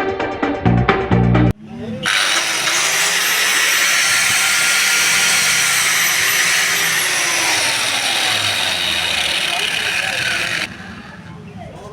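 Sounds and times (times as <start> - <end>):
cutter motor whirring: 2.0 - 11.4.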